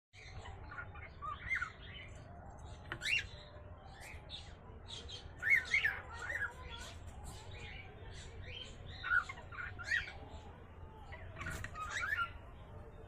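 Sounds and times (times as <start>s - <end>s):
cockatiel chirps and squawks: 0.3s - 1.9s, 2.8s - 4.2s, 5.0s - 7.8s, 8.5s - 10.2s, 11.1s - 12.4s.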